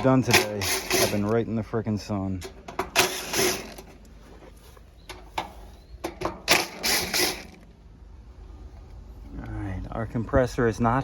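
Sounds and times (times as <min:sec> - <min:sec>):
metal cover being handled: 0:00.0 - 0:01.4, 0:02.3 - 0:07.7.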